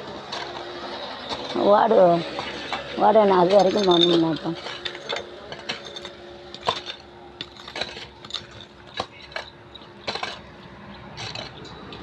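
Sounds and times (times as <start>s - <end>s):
metallic clinks of hand tools: 3.4s - 10.5s.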